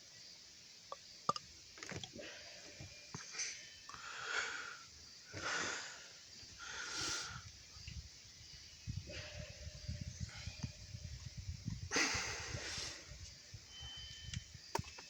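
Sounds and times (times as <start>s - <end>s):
soft wheezy breathing: 2.2s - 7.5s.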